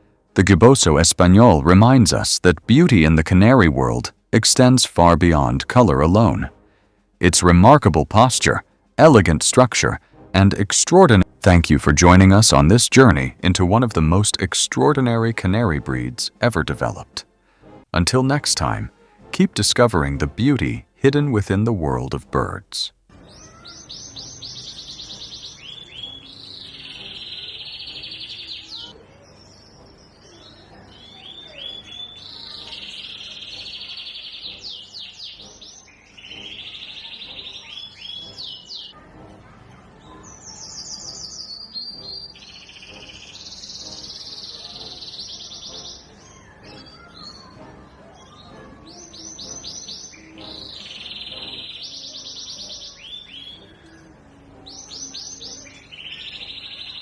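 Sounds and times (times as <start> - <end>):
canary singing trills: 19.8 - 57.0.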